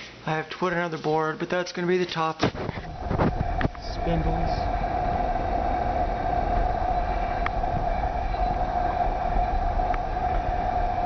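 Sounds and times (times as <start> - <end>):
snowblower engine drone: 2.9 - 11.0.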